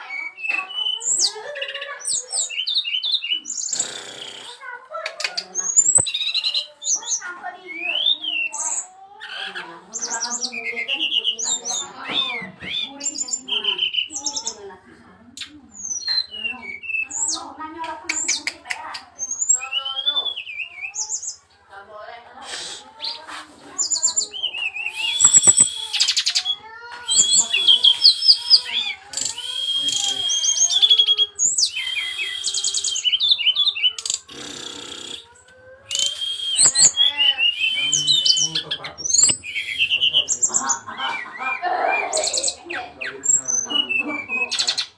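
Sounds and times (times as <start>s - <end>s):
bird singing whistles and trills: 5.6s - 8.9s, 10.0s - 14.6s, 15.4s - 17.4s, 19.2s - 21.4s, 23.8s - 44.9s.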